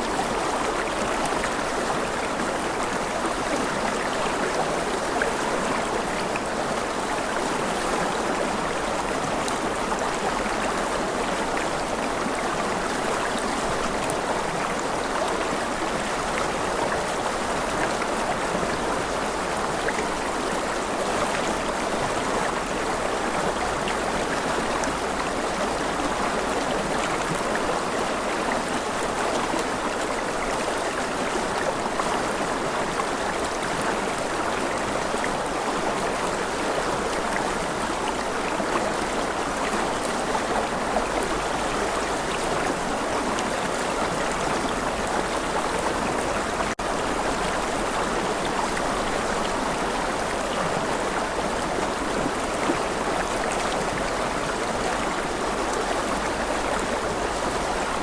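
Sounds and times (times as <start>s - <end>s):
stream water flowing: 0.0s - 58.0s.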